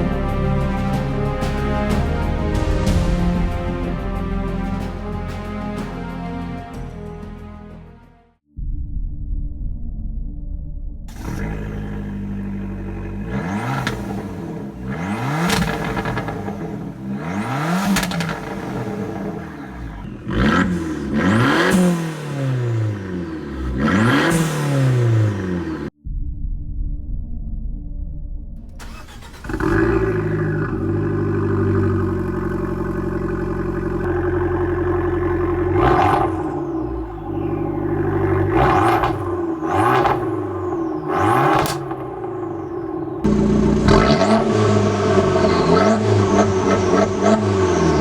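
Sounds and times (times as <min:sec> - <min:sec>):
car engine idling and revving: 0:00.0 - 0:06.9, 0:11.0 - 0:26.0, 0:27.2 - 0:48.0
exhaust pops: 0:11.1 - 0:23.2, 0:28.7 - 0:47.4.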